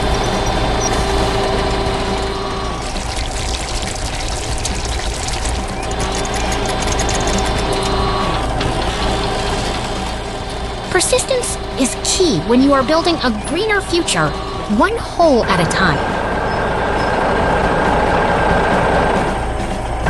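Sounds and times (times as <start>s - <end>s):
construction machine engines running: 0.0s - 20.0s
excavators rattling and clanking: 0.0s - 20.0s.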